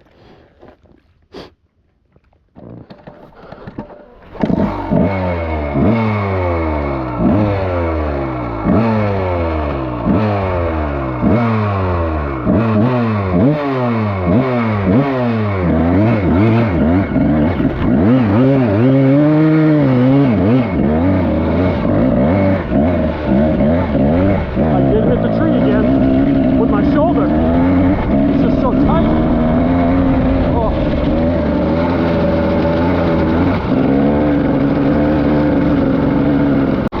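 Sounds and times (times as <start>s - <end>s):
dirt bike engine revving: 3.9s - 37.0s.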